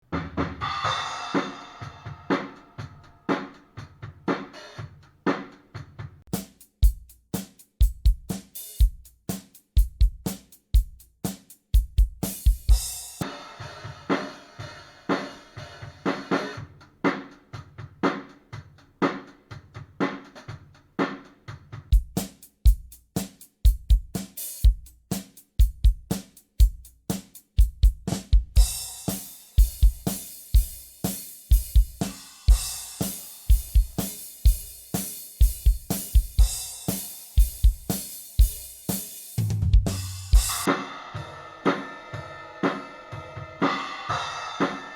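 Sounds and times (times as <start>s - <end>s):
drum kit groove: 0.0s - 44.9s
cymbals ringing: 40.4s - 44.9s.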